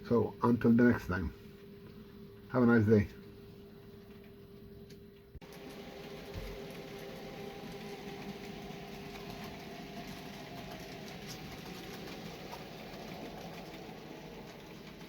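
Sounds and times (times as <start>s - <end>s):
electric motor hum: 5.4s - 15.0s
model train wheels on track: 5.6s - 15.0s.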